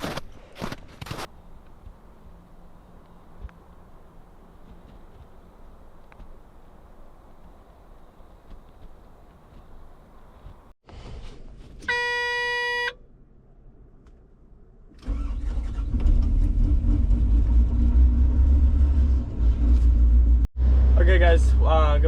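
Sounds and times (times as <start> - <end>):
diesel engine starting and rumbling: 14.8 - 22.0.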